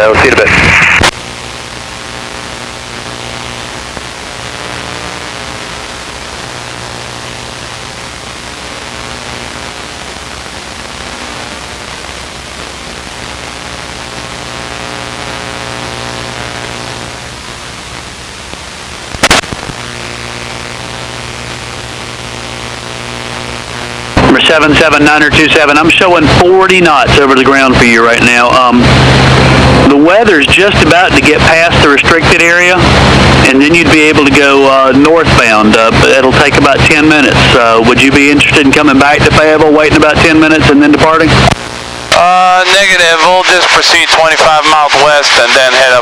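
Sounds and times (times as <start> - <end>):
intercom hiss: 0.0 - 1.6, 23.4 - 46.0.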